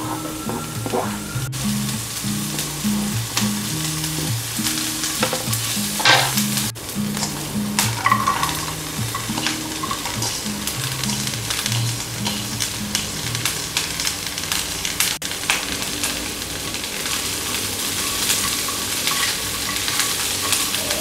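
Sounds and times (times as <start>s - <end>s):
spatula scraping pan: 0.0s - 1.4s, 7.2s - 13.0s
soft background music: 0.0s - 14.2s
onion sizzling in oil: 0.0s - 21.0s
green beans tumbling into pan: 5.0s - 13.1s.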